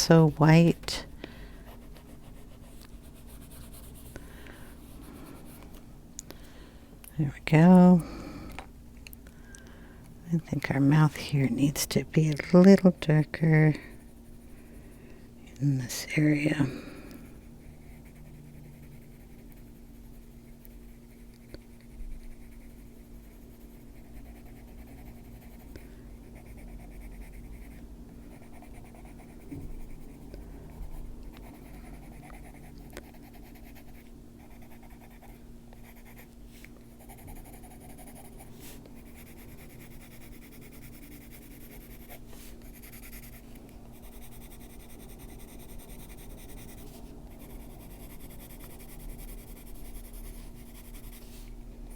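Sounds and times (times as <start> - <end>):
low background hum: 0.0 - 51.9
pencil scratching on paper: 21.9 - 30.2, 31.4 - 36.3, 37.0 - 43.4, 44.0 - 51.5.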